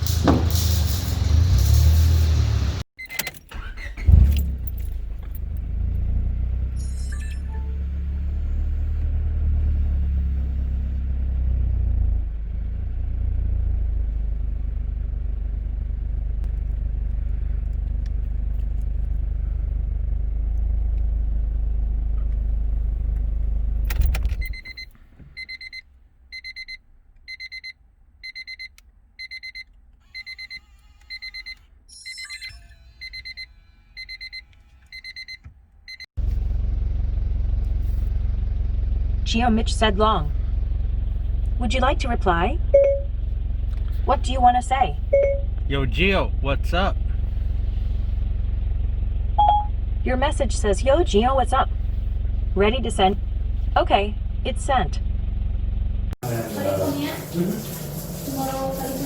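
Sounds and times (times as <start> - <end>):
car exhaust rumbling: 4.0 - 24.4, 36.2 - 57.6
electronic warning chime beeping: 6.8 - 7.9, 26.4 - 29.6, 42.7 - 43.1, 44.6 - 45.5, 49.4 - 49.7.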